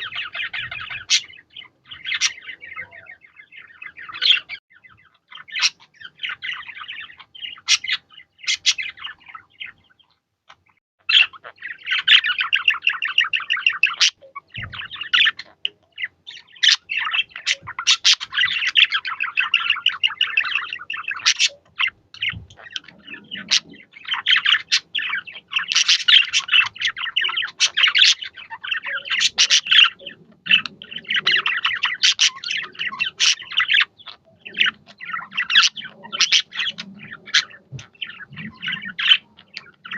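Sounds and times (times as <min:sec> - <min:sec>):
budgies chattering and warbling: 0:00.0 - 0:39.9.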